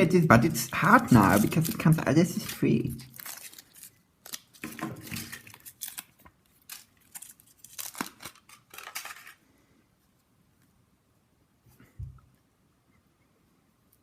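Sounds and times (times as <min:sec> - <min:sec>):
foil rustling: 0:00.5 - 0:09.4.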